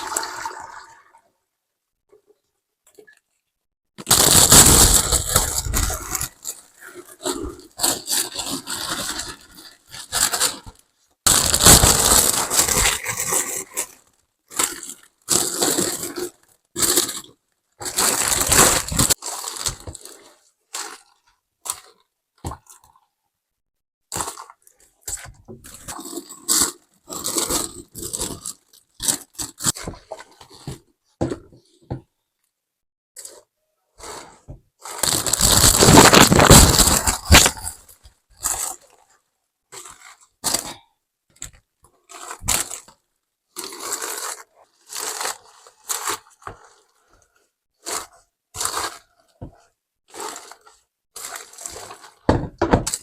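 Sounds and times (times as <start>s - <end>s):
crunching and scraping: 4.0s - 22.0s, 33.2s - 39.2s.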